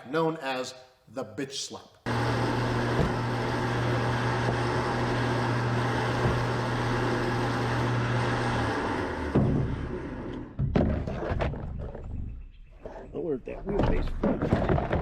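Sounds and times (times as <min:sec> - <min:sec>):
vehicle engine humming: 0:02.1 - 0:10.6.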